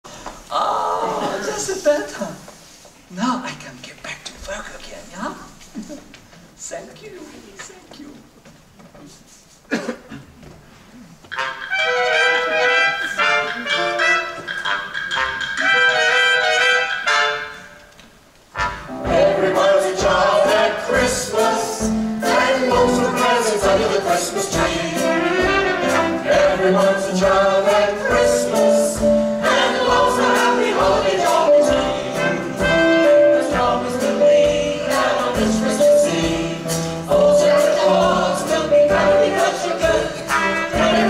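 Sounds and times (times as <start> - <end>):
instrumental accompaniment with beat: 11.2 - 17.6, 18.6 - 41.0
ensemble singing in chorus: 18.8 - 41.0.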